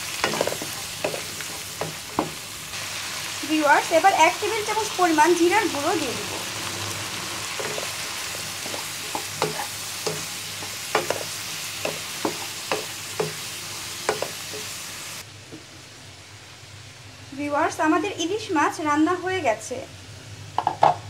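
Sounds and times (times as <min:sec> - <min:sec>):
vegetables sizzling in hot oil: 0:00.0 - 0:21.0
spatula scraping a pan: 0:00.1 - 0:02.4, 0:07.5 - 0:14.8.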